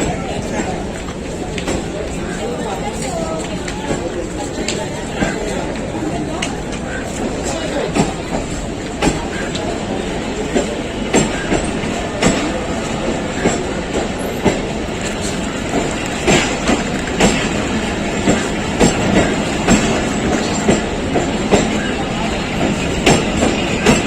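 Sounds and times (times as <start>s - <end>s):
train coaches rumbling past: 0.0s - 24.0s
wheels clacking over rail joints: 0.0s - 24.0s.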